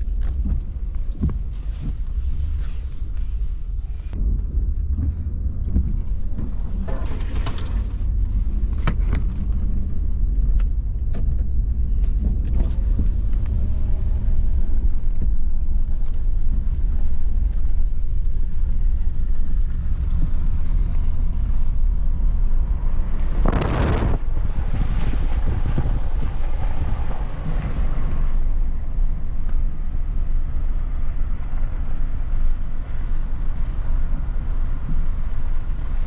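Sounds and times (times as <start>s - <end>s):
vehicle engine and road noise: 0.0s - 36.0s.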